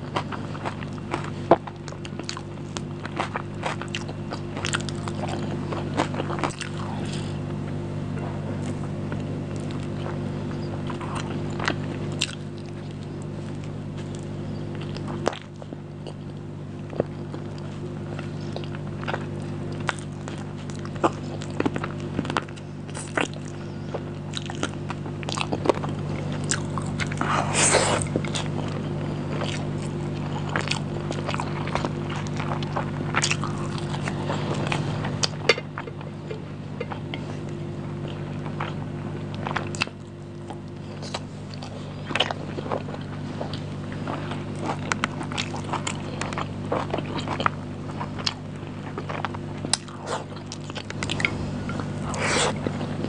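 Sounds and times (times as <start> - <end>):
chewing with wet mouth smacks: 0.0 - 53.0
steady low hum: 0.0 - 53.0
loud noisy mouth sound: 51.2 - 52.6.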